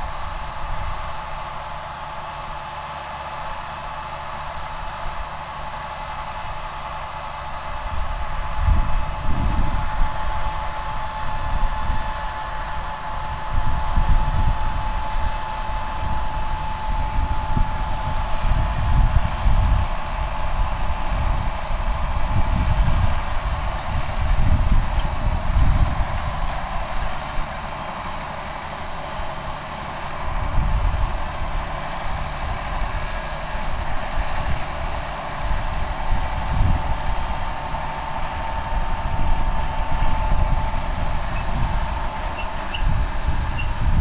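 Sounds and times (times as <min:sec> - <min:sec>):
high whine: 0:00.0 - 0:44.0
tractor engine running: 0:00.0 - 0:44.0.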